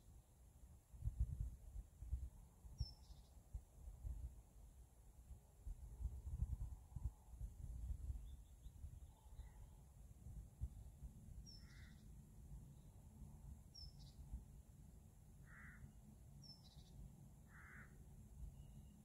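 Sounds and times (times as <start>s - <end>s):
lower rough bird call: 11.4s - 12.1s, 15.4s - 15.9s, 17.5s - 18.0s.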